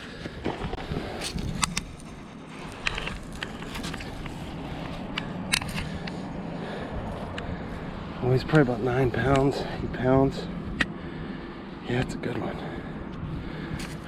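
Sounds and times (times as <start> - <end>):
sharp clicks and scrapes: 0.4 - 6.2.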